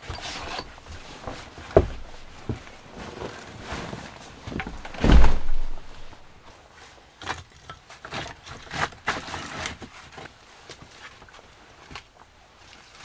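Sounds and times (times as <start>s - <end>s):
light knocks and rustles: 0.0s - 6.5s
heavy low thump: 1.8s - 2.8s, 4.7s - 6.4s.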